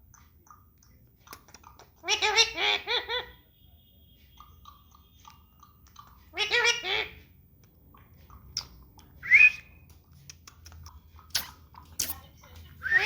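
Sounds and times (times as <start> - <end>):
parrot chirps: 1.5 - 7.2
parrot imitating laughter: 2.0 - 3.4, 6.3 - 7.2
thin whistle: 9.2 - 9.8.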